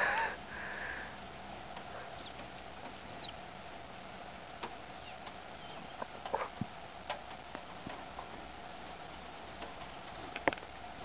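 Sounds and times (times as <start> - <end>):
small birds chirping: 0.0 - 3.6, 4.5 - 6.6.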